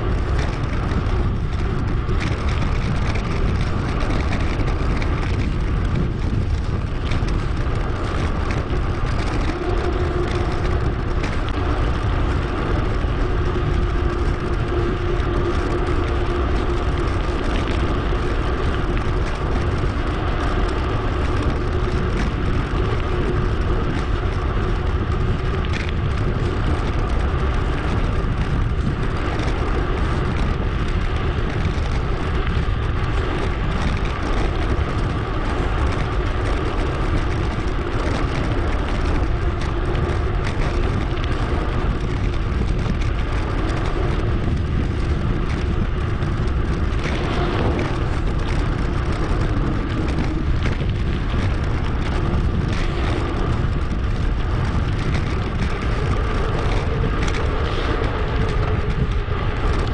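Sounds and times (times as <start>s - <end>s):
bicycle tyre and road noise: 0.0s - 59.9s
wind rushing on microphone: 0.0s - 59.9s.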